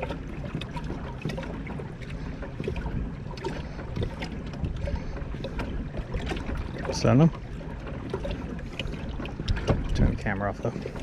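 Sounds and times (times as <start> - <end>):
low steady rumble: 0.0 - 11.0
kayak gear knocks and scrapes: 9.4 - 10.1.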